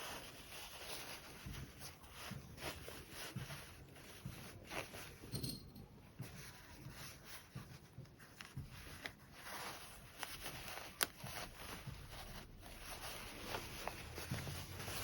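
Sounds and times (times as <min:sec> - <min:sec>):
fabric rustling: 0:00.0 - 0:15.0.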